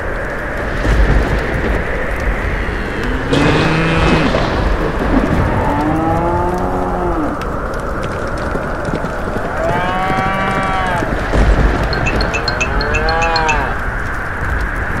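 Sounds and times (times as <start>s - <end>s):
thunder rumbling: 0.0s - 9.7s, 10.3s - 14.6s
heavy rain: 0.0s - 15.0s
cow mooing: 12.6s - 13.8s.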